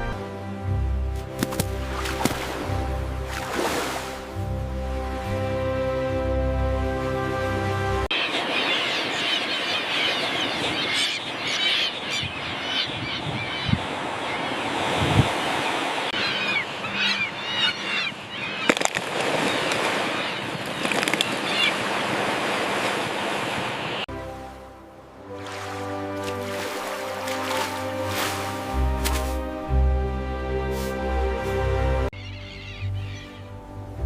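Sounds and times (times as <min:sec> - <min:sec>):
terns calling harshly: 0:08.1 - 0:14.6, 0:16.1 - 0:21.9, 0:32.2 - 0:33.6.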